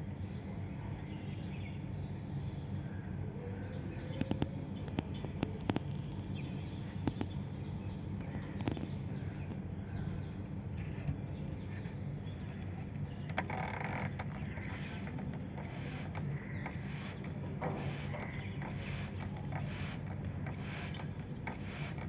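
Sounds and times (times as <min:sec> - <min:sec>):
sharp clicks: 0:13.2 - 0:22.0.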